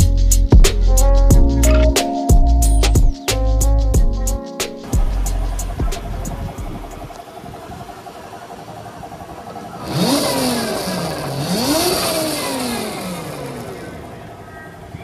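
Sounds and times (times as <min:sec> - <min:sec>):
electric scooter motor whine: 0:05.0 - 0:15.0.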